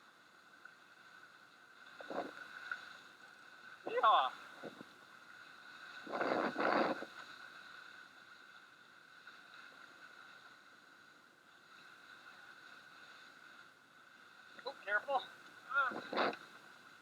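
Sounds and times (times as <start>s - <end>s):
water rushing along boat hull: 0.9s - 17.0s
wind noise: 15.8s - 16.4s.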